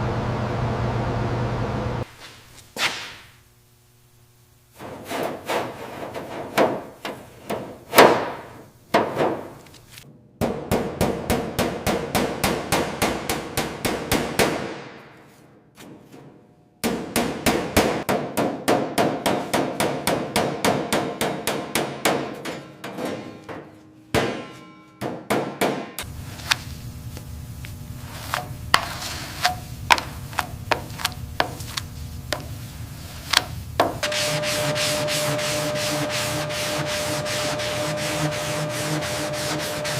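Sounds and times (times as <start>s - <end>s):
steady low hiss: 0.0s - 10.0s, 26.1s - 34.9s
hammer striking metal: 16.8s - 26.1s.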